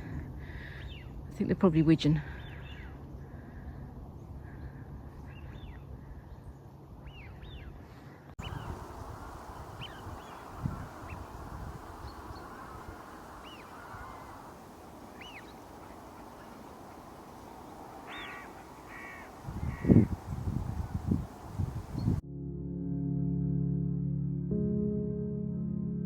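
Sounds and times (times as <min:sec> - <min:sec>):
crow cawing: 0:08.4 - 0:20.2.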